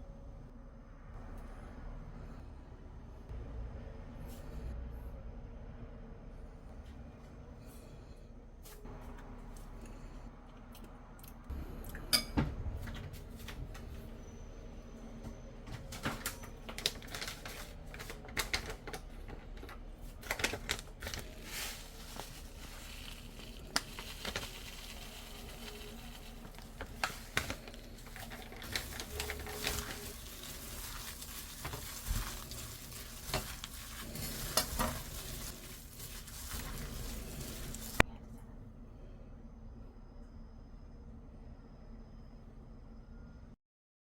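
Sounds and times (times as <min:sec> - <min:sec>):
greens rustling in a bowl: 0:20.1 - 0:38.1.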